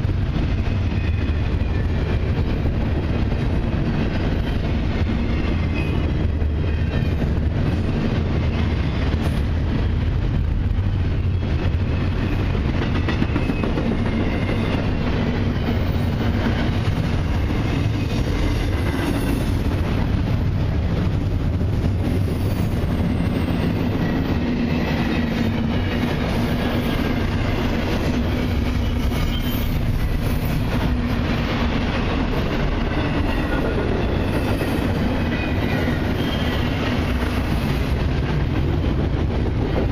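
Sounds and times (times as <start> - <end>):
freight train rumbling past: 0.0 - 39.9
faint wheel squeal: 29.0 - 29.8.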